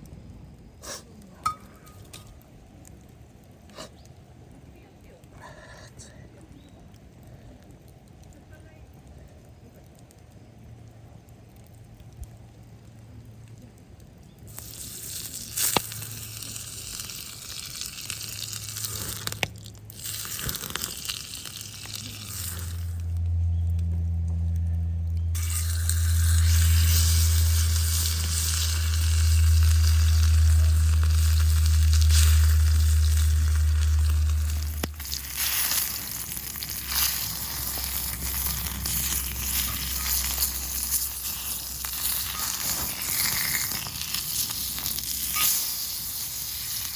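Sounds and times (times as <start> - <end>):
food sizzling in a pan: 14.5 - 23.1, 25.4 - 46.9
loud low hum: 21.6 - 45.4.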